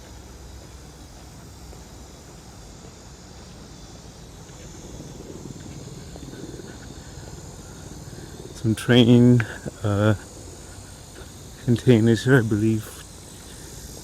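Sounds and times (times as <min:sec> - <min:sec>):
insects buzzing: 0:00.0 - 0:14.0
distant engine rumble: 0:03.6 - 0:14.0.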